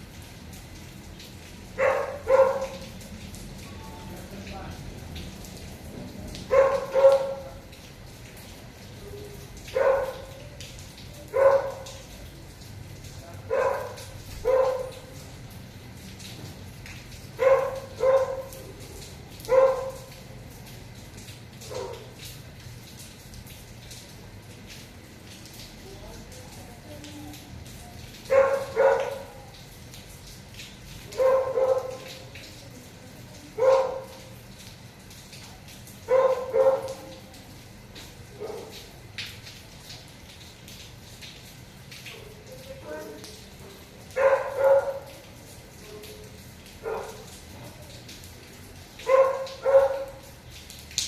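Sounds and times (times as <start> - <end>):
dog barking: 1.8 - 2.9, 6.4 - 7.6, 9.7 - 10.5, 11.2 - 12.1, 13.5 - 15.1, 17.4 - 18.6, 19.4 - 20.2, 21.6 - 22.2, 28.3 - 29.6, 31.1 - 32.3, 33.6 - 34.3, 36.0 - 37.2, 38.4 - 38.9, 44.1 - 45.2, 46.8 - 47.4, 49.0 - 50.3.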